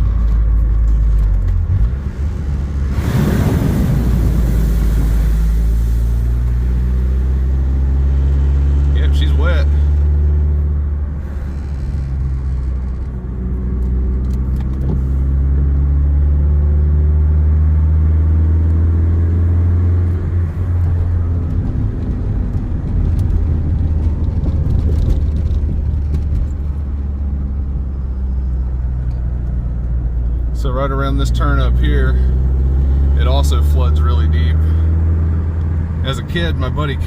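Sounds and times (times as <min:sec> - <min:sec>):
rough noisy sound: 0:00.0 - 0:15.3
car engine and road noise: 0:00.0 - 0:37.0.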